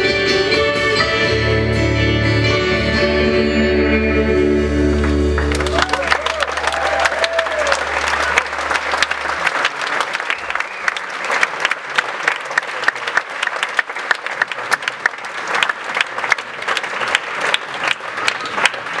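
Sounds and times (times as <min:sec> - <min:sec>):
low stage hum: 0:03.2 - 0:11.4
audience applauding: 0:05.0 - 0:19.0.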